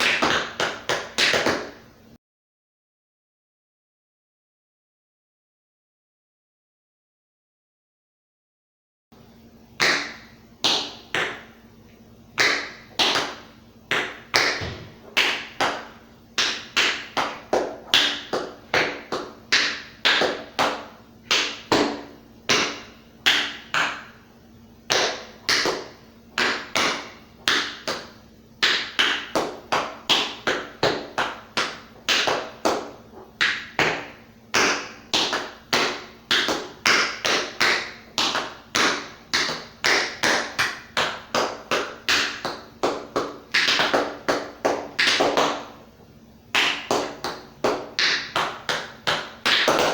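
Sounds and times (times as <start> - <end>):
tap shoes tapping on floor: 0.0 - 1.8, 12.4 - 24.0, 24.9 - 45.8, 46.5 - 49.9.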